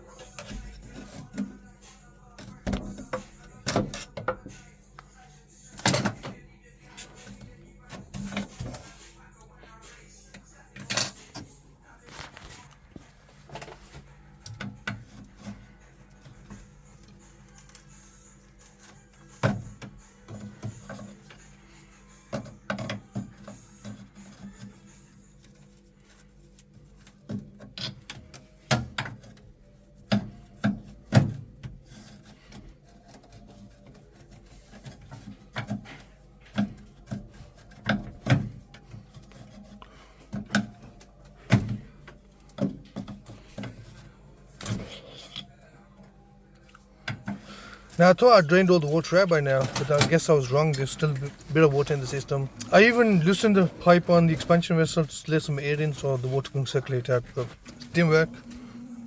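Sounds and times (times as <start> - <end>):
metal tools knocking and scraping: 10.8 - 11.6.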